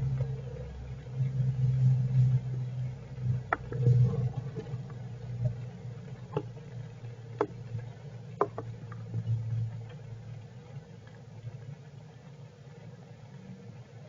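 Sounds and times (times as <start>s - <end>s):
sharp drip ticks: 2.8s - 12.1s.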